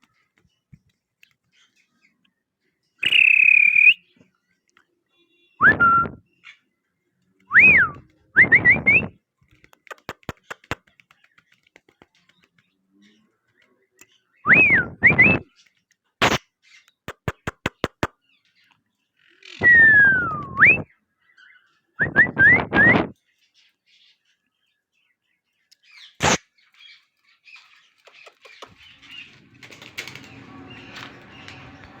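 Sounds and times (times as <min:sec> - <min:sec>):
loud whistled notes: 0:03.0 - 0:04.0
sharp clicks: 0:09.5 - 0:12.6, 0:16.2 - 0:18.1.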